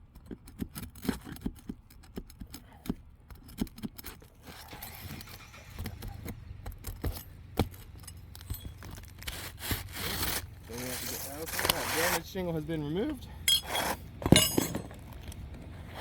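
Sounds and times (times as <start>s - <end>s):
metal tools clinking and tapping: 2.5s - 9.4s, 13.0s - 15.7s
rough scraping: 4.1s - 16.0s.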